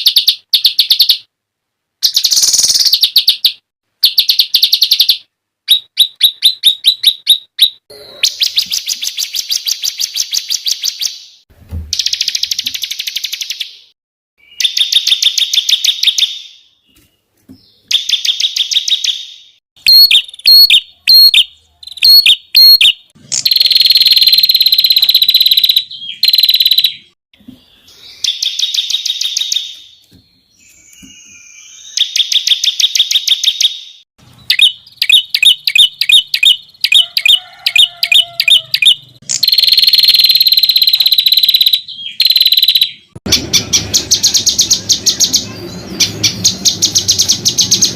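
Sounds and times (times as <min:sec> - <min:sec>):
songbird trilling: 0:02.0 - 0:11.2, 0:19.9 - 0:27.1, 0:34.5 - 0:47.9
buzzy bird trill: 0:02.0 - 0:16.7, 0:17.9 - 0:27.2, 0:27.8 - 0:47.9
sharp loud bird chips: 0:02.0 - 0:16.7, 0:17.8 - 0:27.2, 0:28.0 - 0:30.0, 0:30.6 - 0:47.9.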